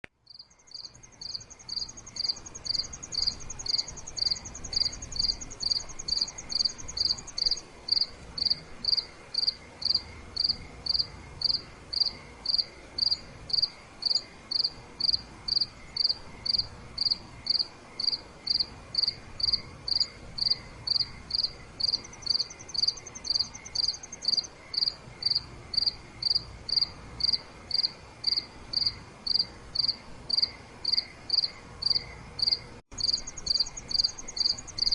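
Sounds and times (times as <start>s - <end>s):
crickets chirping: 0.2s - 34.9s
higher insect trill: 0.3s - 34.9s.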